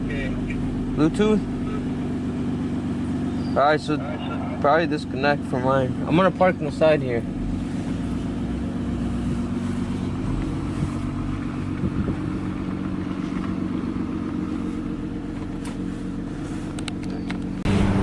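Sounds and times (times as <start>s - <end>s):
car engine humming: 0.0s - 18.0s.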